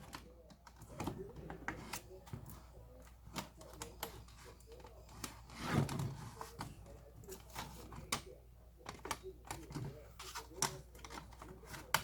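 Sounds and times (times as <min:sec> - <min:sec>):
plastic laptop parts clicking: 0:07.3 - 0:12.0.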